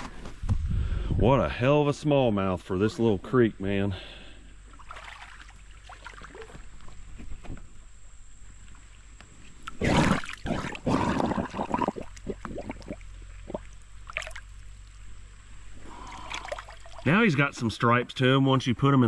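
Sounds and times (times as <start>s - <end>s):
water splashing around a kayak: 4.7s - 6.8s, 9.7s - 15.0s, 15.9s - 17.2s.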